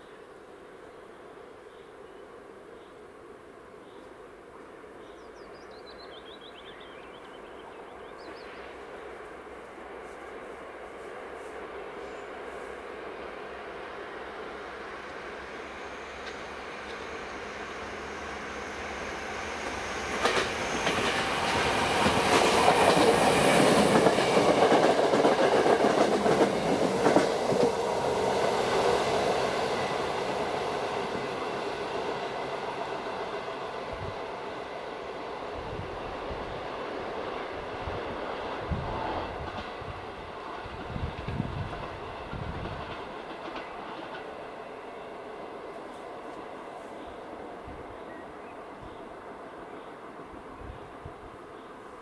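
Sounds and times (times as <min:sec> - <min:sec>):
train wheels clicking over rails: 0:16.0 - 0:33.5, 0:39.3 - 0:44.8.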